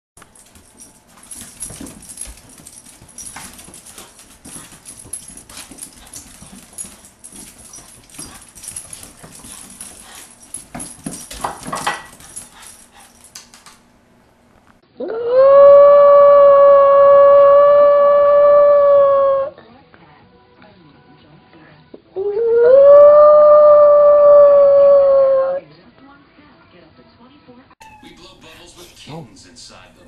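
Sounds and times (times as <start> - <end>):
dog whining: 15.0 - 19.6, 27.8 - 28.2.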